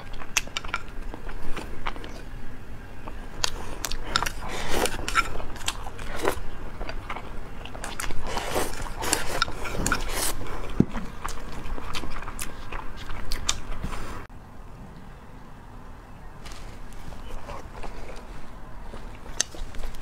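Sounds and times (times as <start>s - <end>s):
chewing rice: 0.0s - 14.3s, 16.5s - 20.0s
noisy slurp: 3.4s - 14.3s
wet mouth clicks: 7.8s - 14.2s.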